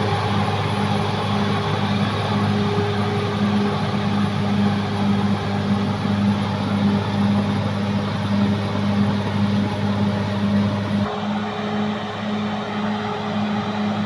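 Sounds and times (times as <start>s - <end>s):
bulldozer diesel engine running: 0.0s - 11.1s.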